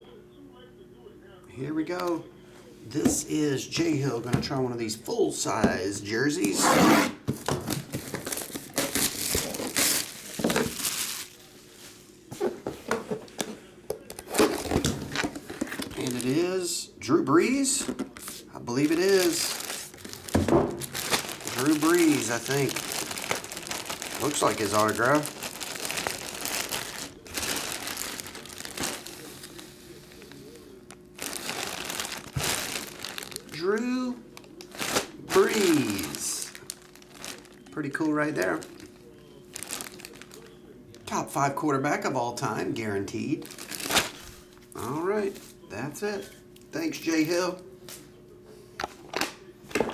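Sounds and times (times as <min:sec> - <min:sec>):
plastic and cardboard crinkling: 0:06.4 - 0:16.6, 0:17.4 - 0:41.0, 0:43.4 - 0:44.6.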